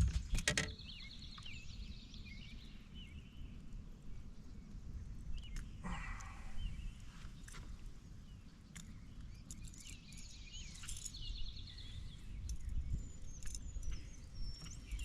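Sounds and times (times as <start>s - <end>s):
birds chirping and calling: 5.3s - 15.0s
faint clicks: 5.4s - 6.4s
bird trill: 8.8s - 15.0s.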